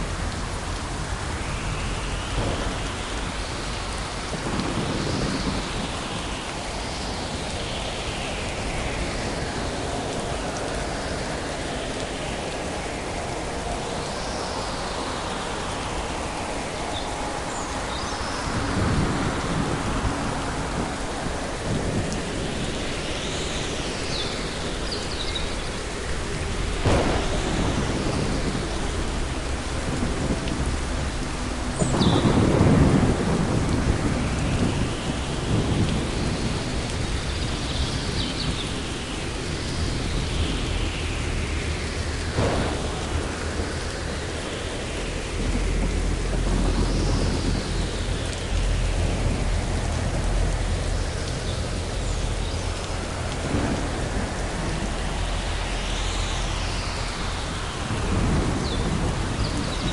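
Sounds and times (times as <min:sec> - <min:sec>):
low thunder rumble: 0:00.0 - 0:59.9
steady rain: 0:00.0 - 0:59.9
thunderclaps: 0:01.6 - 0:10.6, 0:26.2 - 0:59.9.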